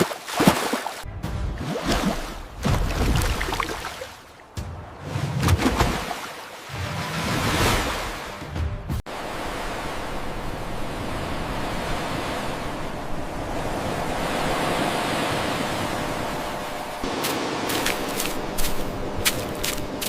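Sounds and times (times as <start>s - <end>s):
ocean waves washing: 9.1s - 20.0s.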